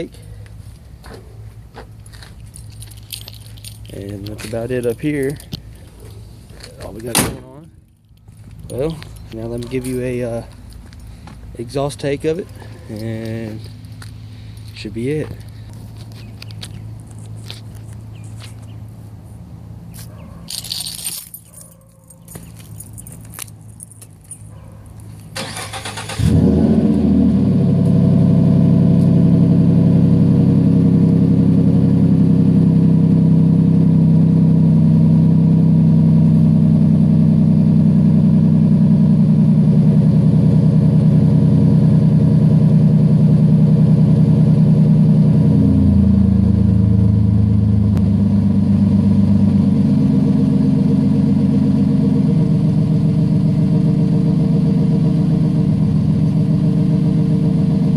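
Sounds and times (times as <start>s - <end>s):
truck engine cranking and starting: 25.3s - 28.2s
deep engine idling: 25.8s - 57.9s.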